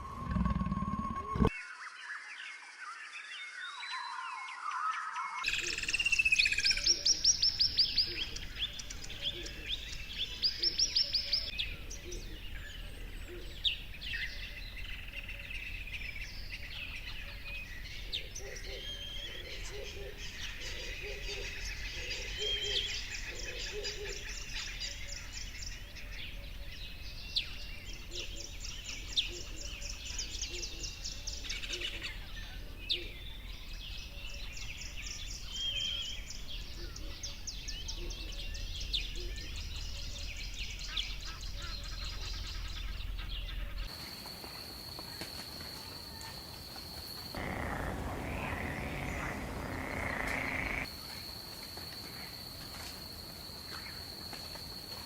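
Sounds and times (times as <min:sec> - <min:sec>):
birds chirping and trilling: 0:00.0 - 0:43.9, 0:47.3 - 0:50.9
rasping chorus: 0:47.4 - 0:50.9.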